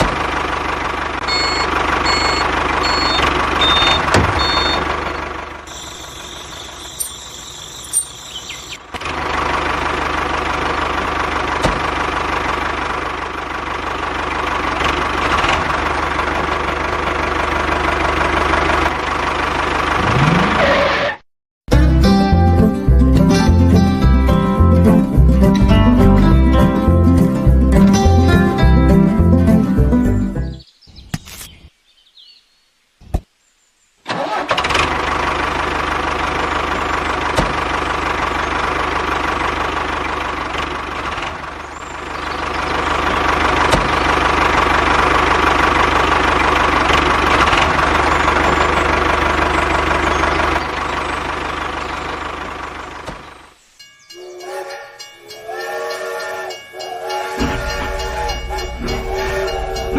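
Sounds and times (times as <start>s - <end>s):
motor running loudly: 5.6s - 8.8s.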